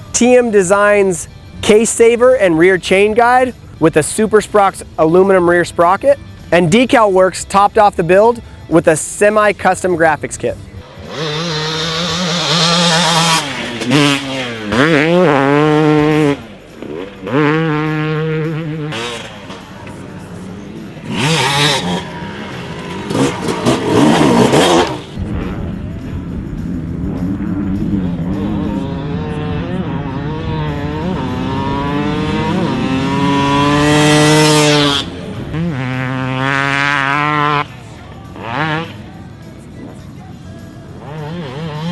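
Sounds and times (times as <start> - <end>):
two-stroke motorcycle revving: 10.8 - 39.7, 40.9 - 41.9.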